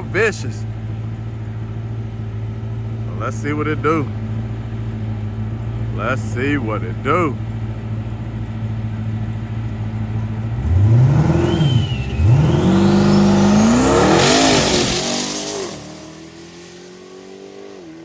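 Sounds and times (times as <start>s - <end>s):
drag car engine accelerating: 8.0s - 18.0s
turbo whistle: 11.2s - 15.8s.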